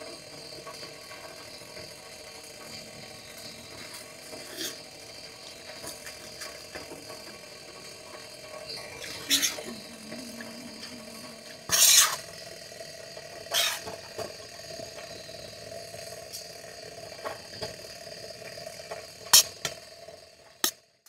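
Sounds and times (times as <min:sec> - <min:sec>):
faint hiss and hum: 0:02.0 - 0:12.8
sharp clatters and scrapes: 0:11.7 - 0:12.3, 0:13.5 - 0:14.4.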